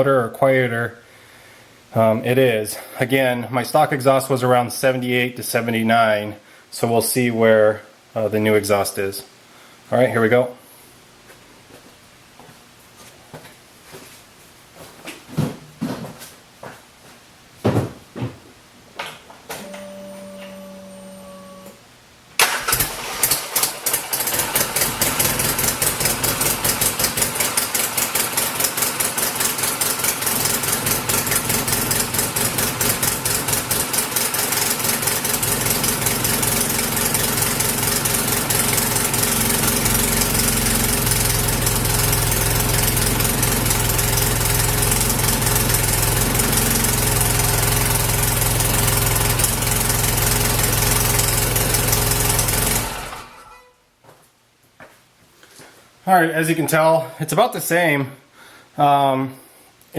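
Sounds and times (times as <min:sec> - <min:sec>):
engine cranking and idling: 0:22.4 - 0:53.6.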